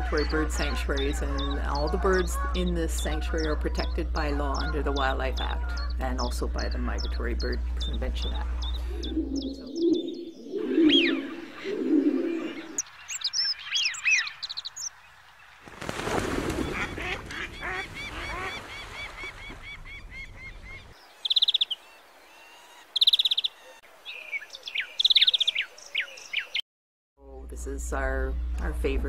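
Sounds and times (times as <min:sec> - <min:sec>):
geese honking: 0:00.0 - 0:10.0, 0:16.6 - 0:23.8
ducks calling: 0:00.0 - 0:26.6
small bird trills: 0:19.4 - 0:26.6.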